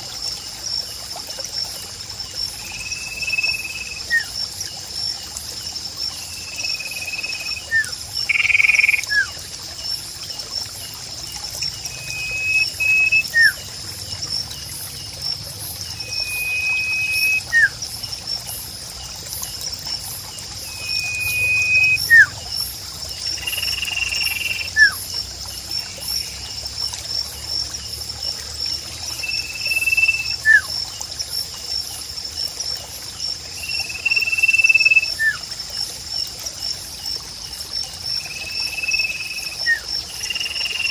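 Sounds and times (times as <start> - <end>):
insects trilling: 0.0 - 40.9
water trickling: 0.0 - 40.9
whistled bird call: 6.9 - 9.3, 11.9 - 13.6, 16.0 - 17.8, 20.7 - 22.4, 23.5 - 25.0, 29.2 - 30.7, 33.9 - 35.4, 38.8 - 39.8.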